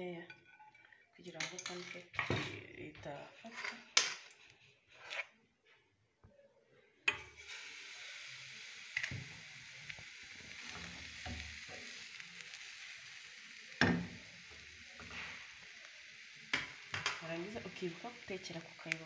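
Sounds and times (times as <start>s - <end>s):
batter sizzling in hot oil: 7.1s - 19.0s.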